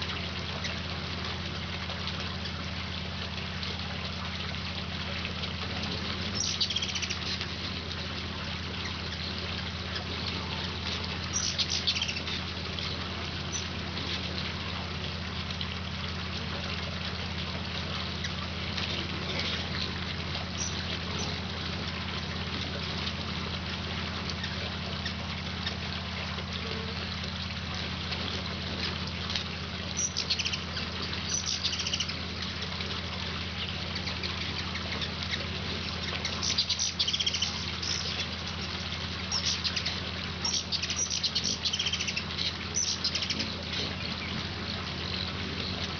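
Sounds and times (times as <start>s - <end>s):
low hum and hiss: 0.0s - 45.9s
hummingbird chip calls: 6.4s - 7.4s, 8.8s - 12.4s, 20.6s - 21.4s, 30.0s - 32.2s, 33.6s - 45.9s.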